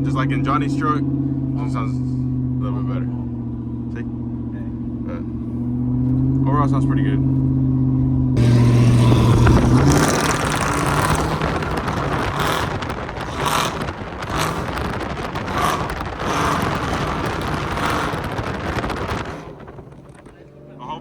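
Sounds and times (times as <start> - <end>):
car engine exhaust: 0.0 - 21.0
wind buffeting on microphone: 8.4 - 20.6.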